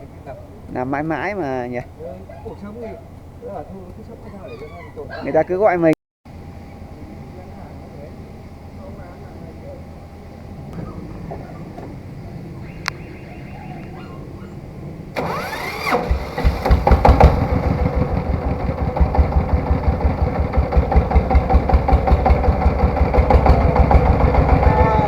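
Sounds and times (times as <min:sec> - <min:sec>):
tractor engine cranking: 0:15.2 - 0:25.0
tractor engine running: 0:15.2 - 0:25.0.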